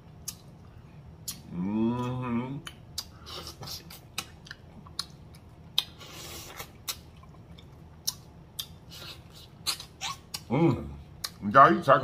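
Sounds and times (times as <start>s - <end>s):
person chewing meat: 0.0s - 10.5s
wet lip smacks: 8.0s - 10.5s.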